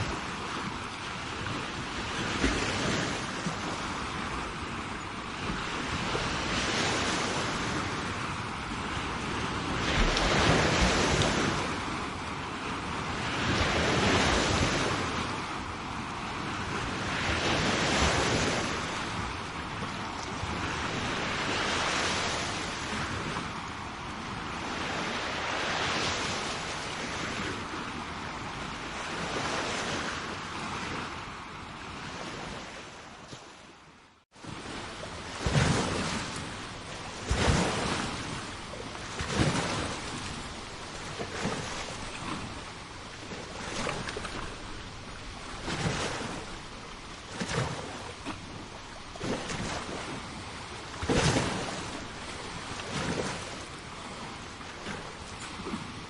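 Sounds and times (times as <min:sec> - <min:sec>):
sea waves washing: 0:00.0 - 0:33.7, 0:34.3 - 0:56.0
water splashes: 0:09.2 - 0:12.0, 0:34.5 - 0:56.0.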